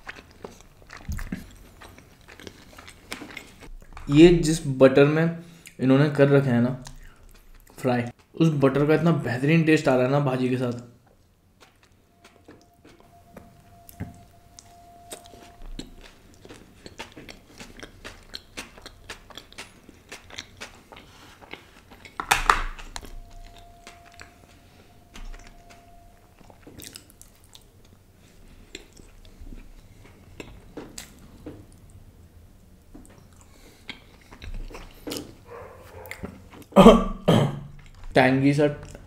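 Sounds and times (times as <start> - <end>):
man biting and chewing bread: 0.0 - 4.1, 6.8 - 8.4, 11.0 - 32.0, 33.0 - 36.8.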